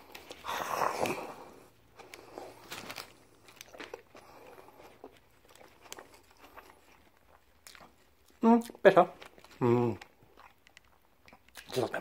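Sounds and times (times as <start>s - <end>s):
chewing food: 0.0s - 12.0s
soft clicks and crackles: 1.9s - 8.4s, 9.2s - 11.9s.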